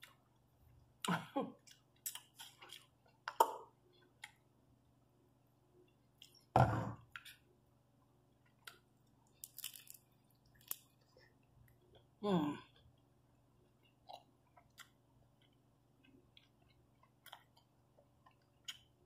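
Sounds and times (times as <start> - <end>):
chewing and crunching: 1.6 - 4.4, 8.4 - 13.0, 13.6 - 19.0.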